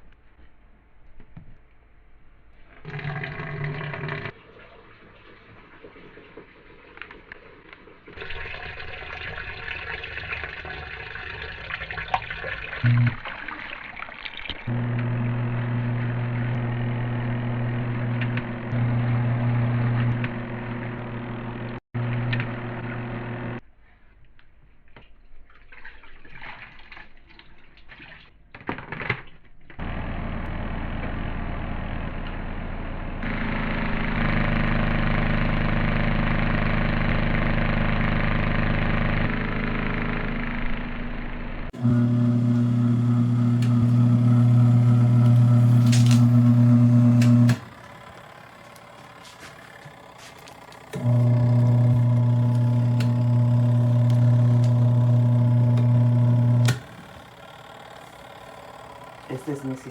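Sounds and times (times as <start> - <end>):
washing machine motor humming: 8.2 - 23.6, 29.8 - 59.9.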